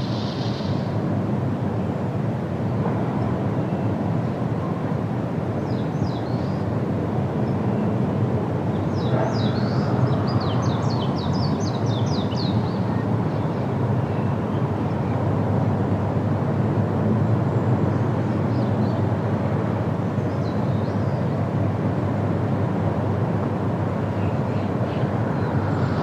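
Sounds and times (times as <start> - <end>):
low wind noise: 0.0 - 26.0.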